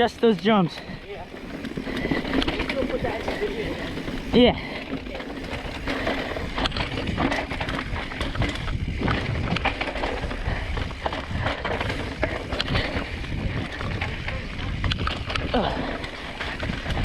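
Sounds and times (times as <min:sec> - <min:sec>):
bike clicks and rattles: 0:00.0 - 0:17.0
bike tyres on dirt trail: 0:00.0 - 0:17.0.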